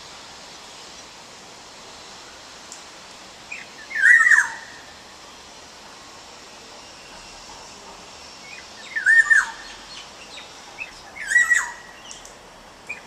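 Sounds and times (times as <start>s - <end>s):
bird calling: 3.5s - 4.8s, 8.5s - 12.3s.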